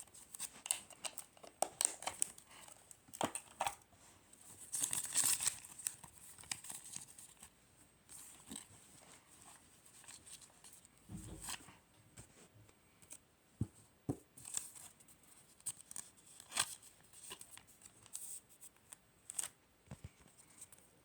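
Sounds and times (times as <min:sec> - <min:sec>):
paper and plastic crinkling: 0:00.0 - 0:07.5
soft bump: 0:11.1 - 0:11.8.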